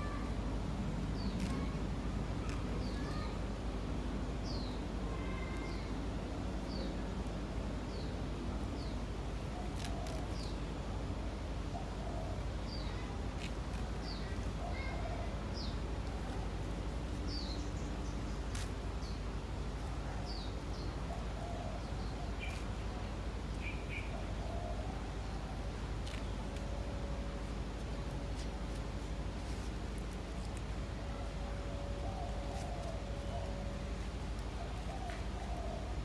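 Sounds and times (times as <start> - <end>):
low background rumble: 0.0 - 36.0
small bird chirping: 21.8 - 24.8.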